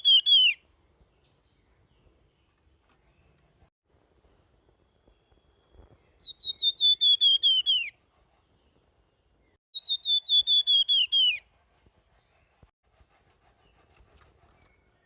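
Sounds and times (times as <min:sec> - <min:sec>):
songbird whistling song: 0:00.0 - 0:03.4, 0:04.1 - 0:08.8, 0:09.4 - 0:12.6.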